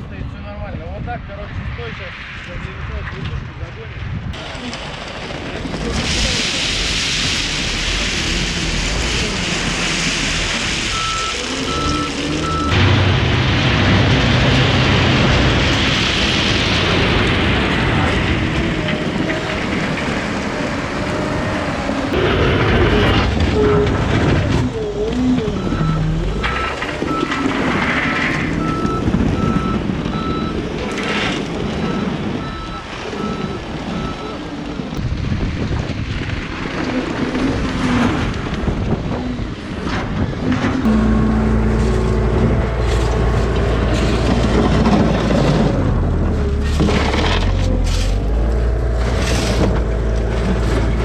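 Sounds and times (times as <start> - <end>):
heavy diesel machinery rumbling: 4.4 - 51.0
wind on microphone: 34.9 - 41.0.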